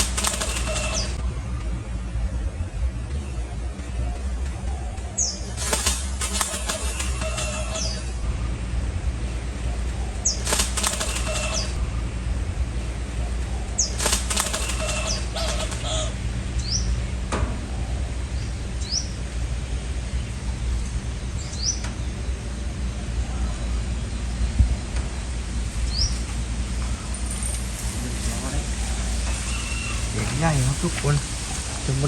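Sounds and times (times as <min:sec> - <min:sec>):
bird wings flapping: 0:00.0 - 0:01.2, 0:05.5 - 0:08.1, 0:10.2 - 0:11.8, 0:13.6 - 0:16.2, 0:27.1 - 0:32.0
small birds chirping: 0:03.1 - 0:08.3, 0:09.2 - 0:11.9, 0:13.0 - 0:32.0.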